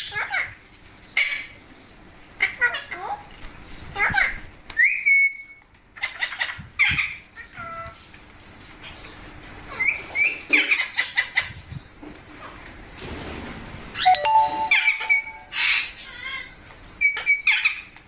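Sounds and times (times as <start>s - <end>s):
parakeets squawking and chirping: 14.8s - 17.9s.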